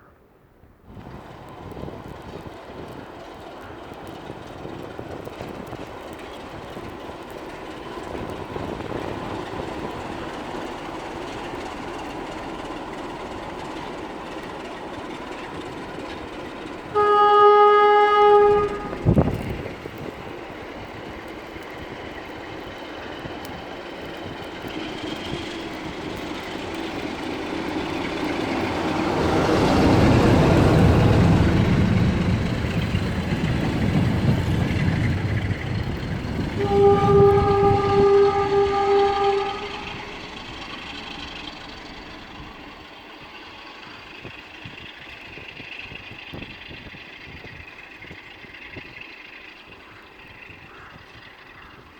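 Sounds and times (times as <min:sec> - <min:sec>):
diesel locomotive engine rumble: 0:00.0 - 0:51.9
locomotive horn blast: 0:16.8 - 0:20.0, 0:27.9 - 0:41.8.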